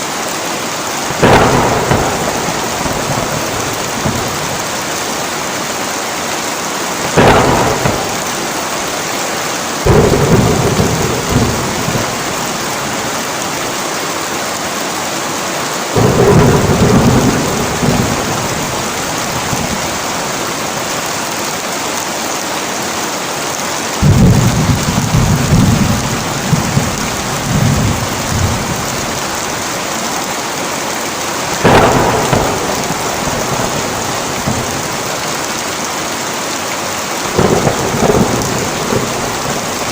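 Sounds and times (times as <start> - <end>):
heavy rain: 0.0 - 39.9
thunder rumbling: 1.0 - 6.0, 6.8 - 13.8, 16.0 - 21.0, 24.0 - 30.3, 31.3 - 39.9
thunder clap: 1.1 - 5.5, 7.0 - 9.2, 9.8 - 13.4, 16.0 - 20.6, 24.0 - 29.7, 31.4 - 35.9, 37.2 - 39.9.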